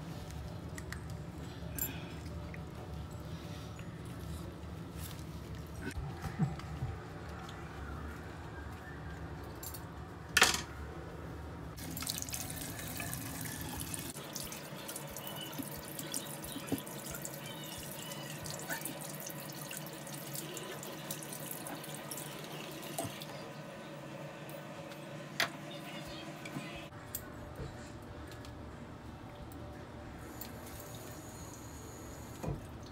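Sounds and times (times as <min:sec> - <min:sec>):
tap water running into sink: 0:11.8 - 0:14.6.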